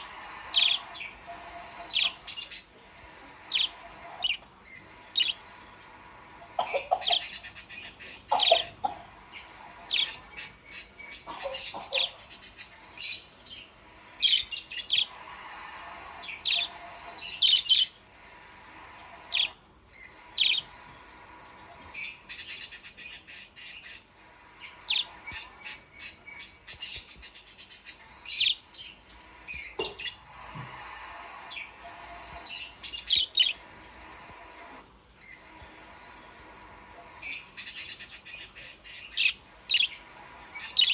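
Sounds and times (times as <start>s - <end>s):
budgerigars chattering: 0.0s - 1.1s, 1.7s - 2.7s, 3.5s - 4.4s, 5.2s - 5.4s, 6.6s - 9.0s, 9.9s - 12.6s, 14.2s - 15.2s, 16.2s - 18.0s, 19.3s - 19.6s, 20.4s - 20.7s, 24.8s - 25.8s, 28.3s - 28.6s, 32.5s - 33.6s, 37.3s - 40.0s, 40.6s - 40.9s.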